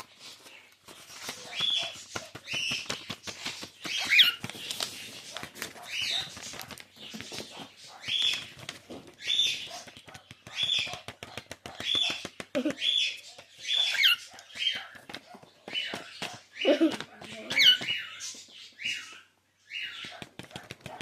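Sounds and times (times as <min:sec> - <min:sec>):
paper crinkling and tearing: 0:00.0 - 0:09.8
bird chirp: 0:00.0 - 0:21.0
beak clicking on paper: 0:00.9 - 0:19.2, 0:19.8 - 0:21.0.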